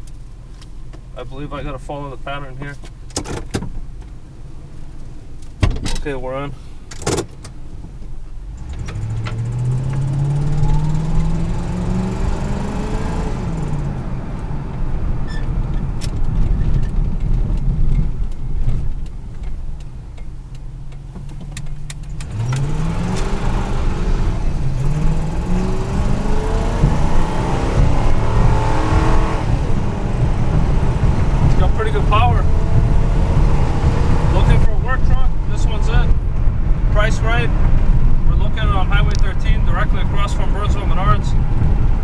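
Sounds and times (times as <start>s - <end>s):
truck engine accelerating: 8.5s - 42.0s
transmission upshifting: 21.9s - 41.9s.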